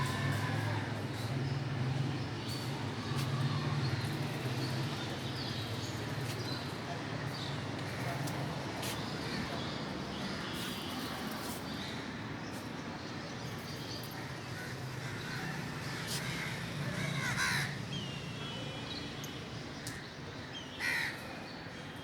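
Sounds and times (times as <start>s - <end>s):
crow cawing: 14.6s - 17.8s, 20.8s - 21.2s.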